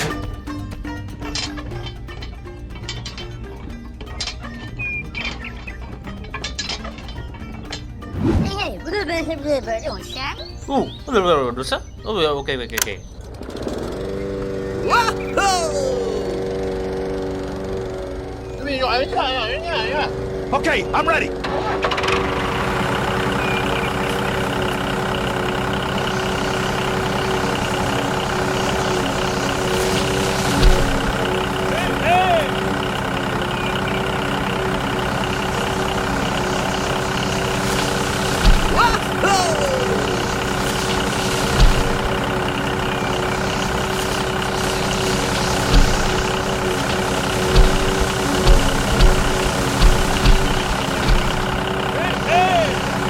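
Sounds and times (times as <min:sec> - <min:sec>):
small tractor engine running: 0:00.0 - 0:53.0
low thumps: 0:26.4 - 0:39.2, 0:40.3 - 0:52.0.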